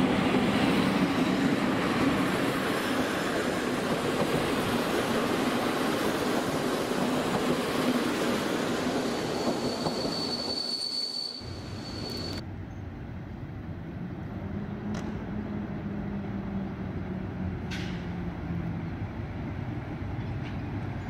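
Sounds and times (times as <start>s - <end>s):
electric locomotive hum: 0.0s - 21.0s
train wheel squeal: 8.0s - 12.9s.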